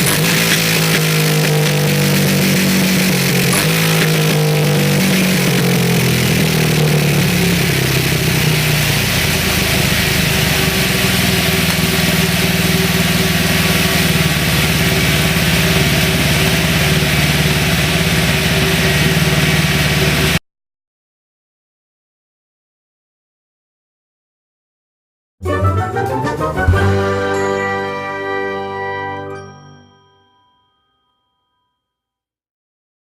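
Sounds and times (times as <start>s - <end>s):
motorcycle engine running: 0.0s - 20.4s.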